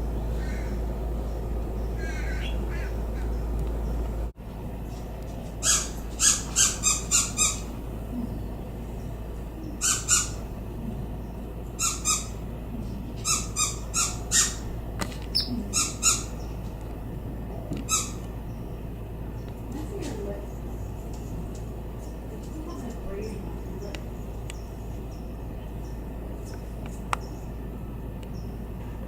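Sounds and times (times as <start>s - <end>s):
bird harsh buzzy calls: 0.0s - 16.8s, 17.8s - 19.5s.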